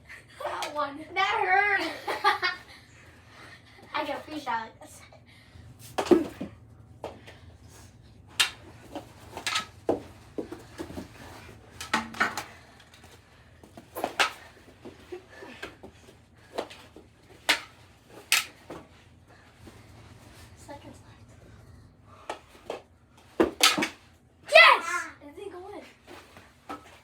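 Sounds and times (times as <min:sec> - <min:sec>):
sticks hitting ball: 0:05.9 - 0:07.2, 0:08.3 - 0:12.5, 0:13.6 - 0:15.0, 0:17.4 - 0:18.8, 0:23.4 - 0:24.0
plastic hockey sticks clacking: 0:08.3 - 0:18.8, 0:22.3 - 0:24.1.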